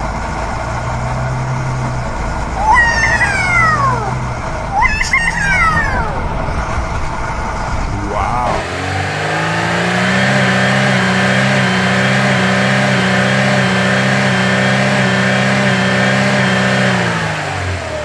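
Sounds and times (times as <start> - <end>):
vehicle engine revving: 6.2 - 18.0.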